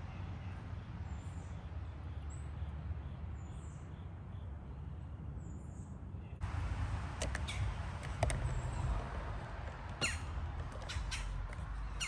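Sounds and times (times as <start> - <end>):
small birds chirping: 7.2 - 12.0.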